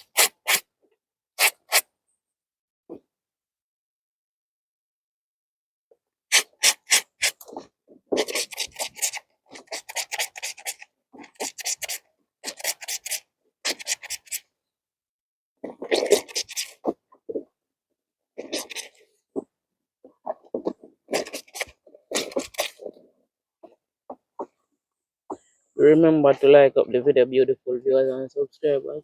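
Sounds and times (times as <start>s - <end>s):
wet clothes scrubbed by hand: 0.0s - 0.7s, 1.4s - 1.9s, 6.3s - 14.4s, 15.6s - 17.5s, 18.4s - 19.1s, 20.2s - 23.0s.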